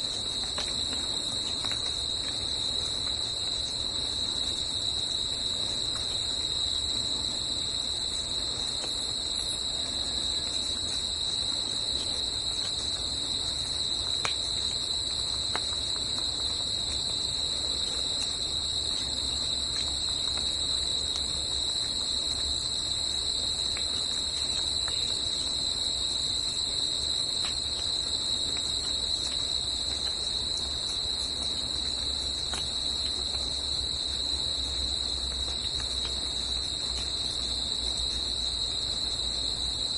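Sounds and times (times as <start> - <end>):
faint ticks: 0.0 - 3.6, 10.4 - 25.6, 27.4 - 39.7
insects trilling: 0.0 - 39.9.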